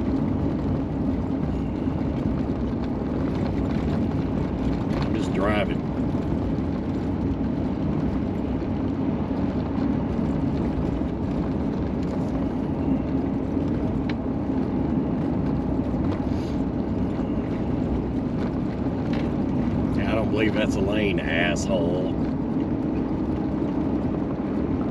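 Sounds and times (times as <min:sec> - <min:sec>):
in-cab engine drone: 0:00.0 - 0:24.9
road noise: 0:00.0 - 0:24.9.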